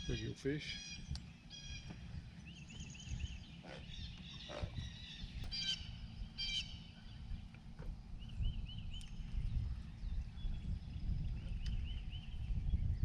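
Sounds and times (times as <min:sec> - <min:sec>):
birds chirping: 0:00.0 - 0:13.0
low steady rumble: 0:00.0 - 0:13.0.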